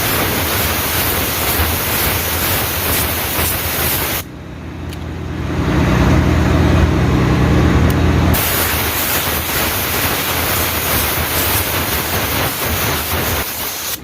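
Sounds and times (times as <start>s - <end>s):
compressed air hissing: 0.0s - 4.3s, 8.4s - 14.0s.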